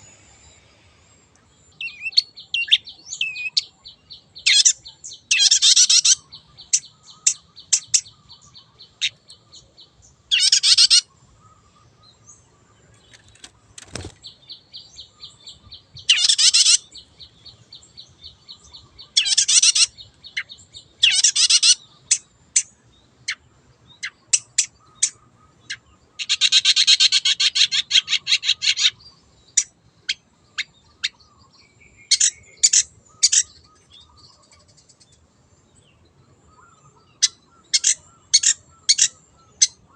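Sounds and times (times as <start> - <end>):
sharp bird chips: 13.1 - 14.2.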